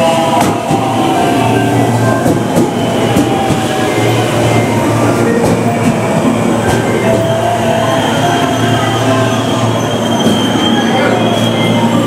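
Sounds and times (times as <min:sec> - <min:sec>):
electric train slowing: 0:00.0 - 0:12.0.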